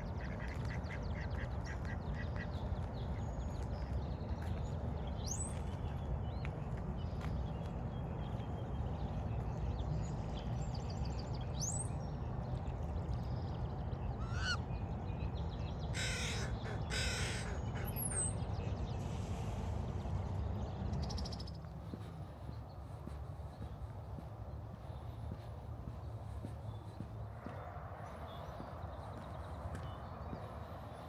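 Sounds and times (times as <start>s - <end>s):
bird cawing: 14.2s - 14.6s, 16.0s - 17.9s.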